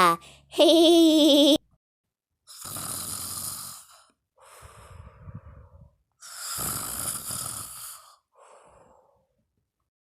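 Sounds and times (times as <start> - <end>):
person imitating snoring: 2.5 - 4.0, 6.2 - 8.2.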